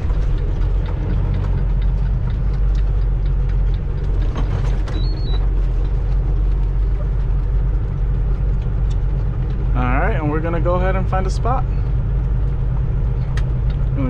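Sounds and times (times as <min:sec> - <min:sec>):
truck diesel engine rumbling: 0:00.0 - 0:14.0.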